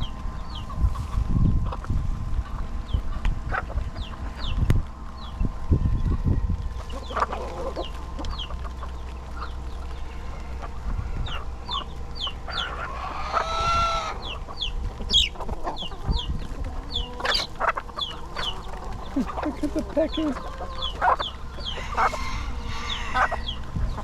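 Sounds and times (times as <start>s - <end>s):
chick peeping: 0.0s - 24.0s
rooster crowing: 20.2s - 23.6s.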